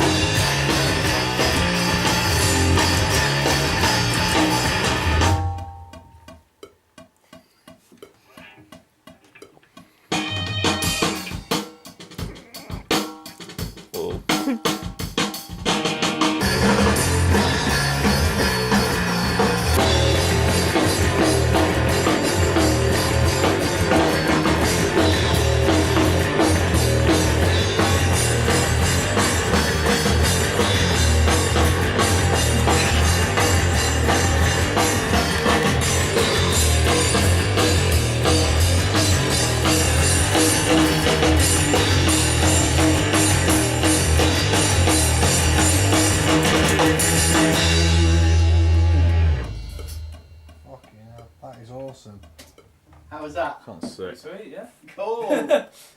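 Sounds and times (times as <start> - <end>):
heavy rock music: 0.0 - 5.7, 10.1 - 13.0, 14.2 - 50.4.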